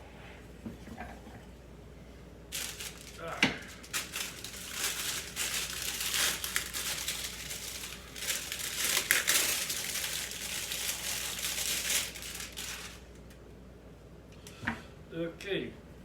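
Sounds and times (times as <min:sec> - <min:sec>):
crinkling and crunching: 0:02.5 - 0:13.4.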